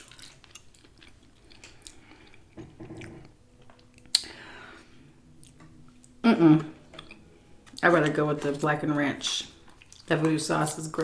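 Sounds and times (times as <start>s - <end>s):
sharp crackle of food: 0.0s - 2.4s
chewing and mouth sounds: 0.0s - 4.5s, 5.4s - 8.6s, 9.3s - 10.4s
wet mouth clicks: 4.0s - 4.4s.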